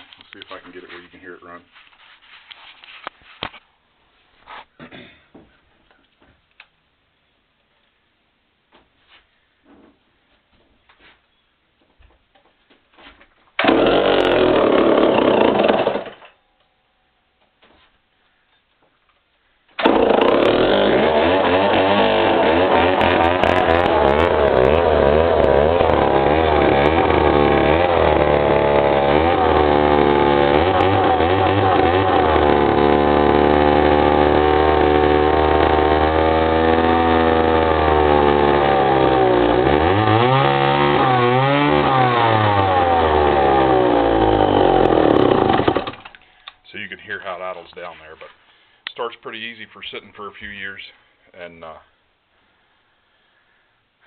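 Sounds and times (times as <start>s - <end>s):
chainsaw pull-started: 13.6s - 16.4s, 19.8s - 46.2s.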